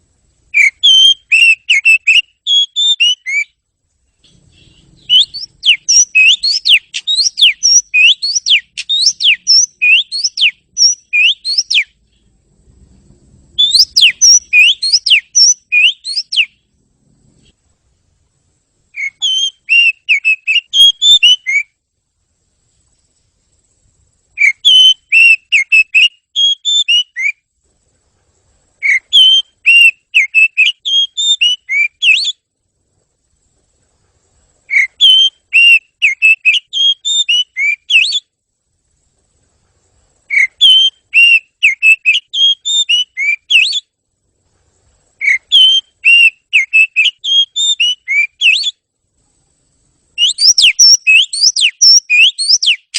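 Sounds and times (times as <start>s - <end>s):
bird whistled song: 0.5s - 3.6s, 4.2s - 12.4s, 13.5s - 16.7s, 18.9s - 21.8s, 24.3s - 27.5s, 28.8s - 32.5s, 34.7s - 38.4s, 40.2s - 44.0s, 45.2s - 48.8s, 50.2s - 52.9s.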